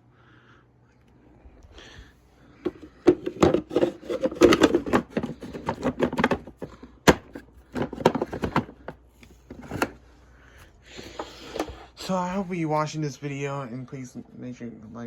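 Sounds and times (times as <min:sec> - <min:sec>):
objects knocking and clicking: 0:02.6 - 0:10.0.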